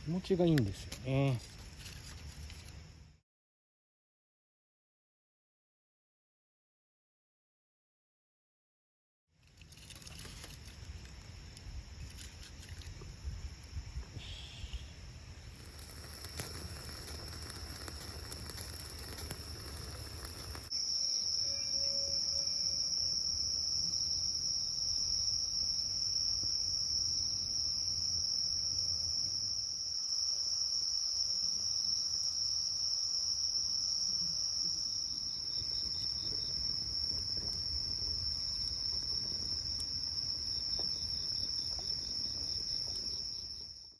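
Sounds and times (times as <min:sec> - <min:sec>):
insects chirring: 0:00.0 - 0:02.9, 0:09.4 - 0:43.9
small ticks: 0:09.4 - 0:13.7, 0:15.6 - 0:20.7, 0:35.5 - 0:43.7.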